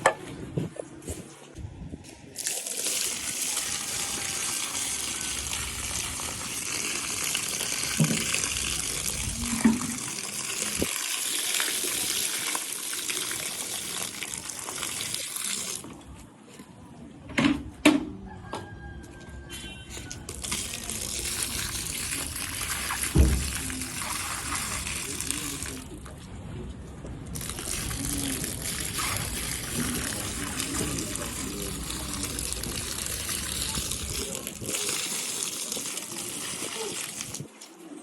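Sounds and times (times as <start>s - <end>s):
water jet spraying: 2.4s - 15.9s, 20.2s - 26.0s, 27.3s - 37.5s.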